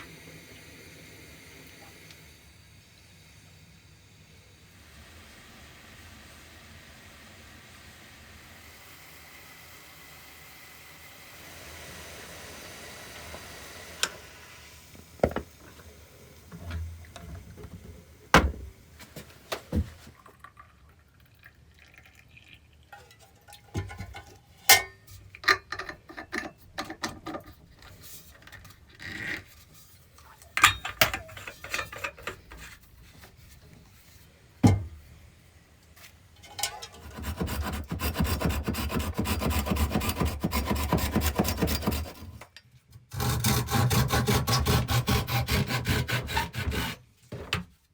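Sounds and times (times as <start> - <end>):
hand tool rasping wood: 37.0 - 42.3, 43.1 - 47.0.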